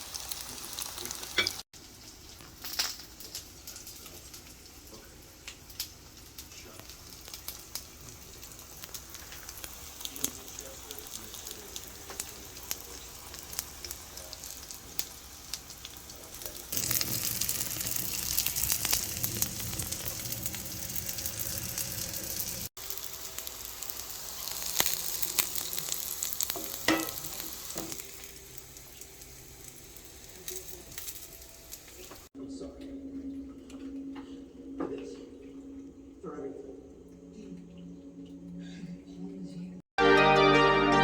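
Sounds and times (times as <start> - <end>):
flowers sizzling in a hot pan: 0.0 - 32.3.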